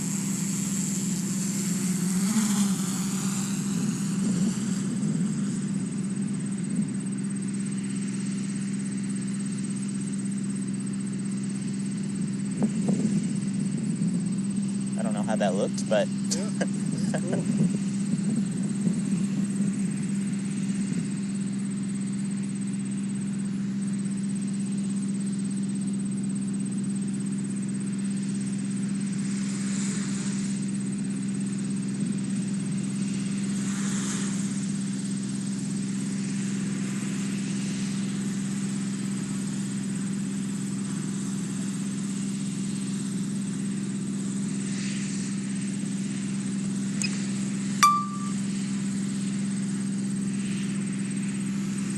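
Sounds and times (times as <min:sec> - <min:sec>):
drone propellers humming: 0:00.0 - 0:10.6, 0:11.3 - 0:20.8.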